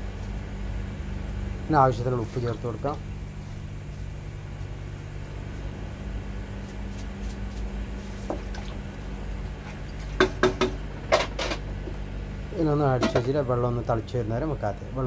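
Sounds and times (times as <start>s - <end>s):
steady low hum: 0.0s - 15.0s
water stirring in pot: 8.2s - 10.4s.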